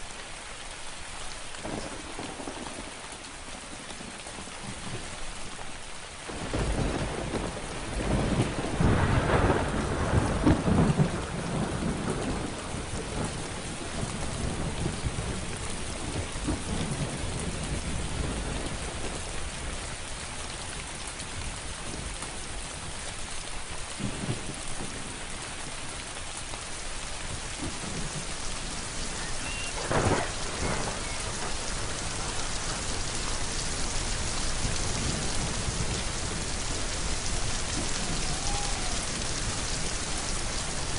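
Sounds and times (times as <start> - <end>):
steady rain falling: 0.0 - 40.9
rolling thunder: 1.6 - 3.0, 6.3 - 19.8, 27.3 - 40.9
sharp crack of thunder: 1.6 - 3.0, 6.3 - 19.2, 27.5 - 40.9.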